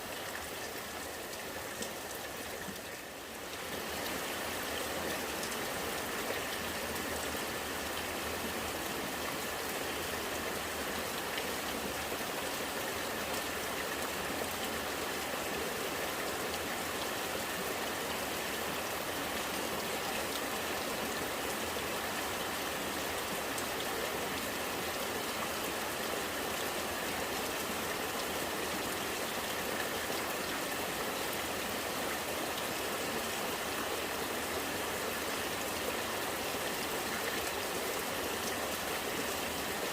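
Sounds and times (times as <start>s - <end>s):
rain falling: 0.0s - 39.9s
rainwater running and gurgling: 0.0s - 39.9s.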